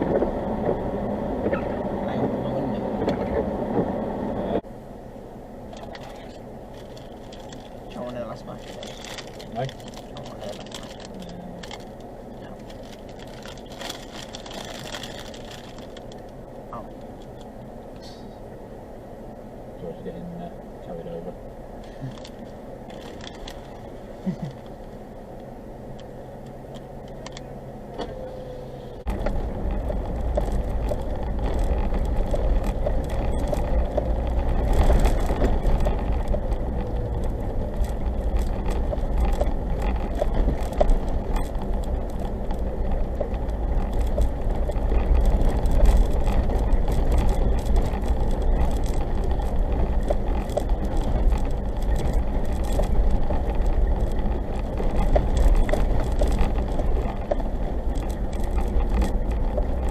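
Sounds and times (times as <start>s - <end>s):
engine hum: 0.0s - 59.9s
tyres and drivetrain rumbling: 0.0s - 59.9s
small knocks and rattles: 29.0s - 59.9s.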